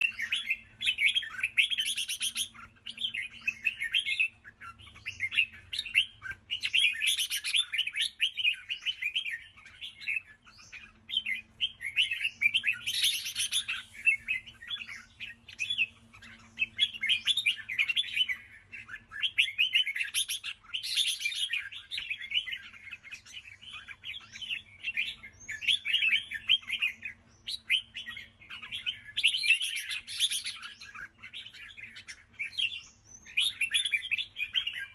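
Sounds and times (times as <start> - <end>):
bird singing chattering song: 0.0 - 34.9.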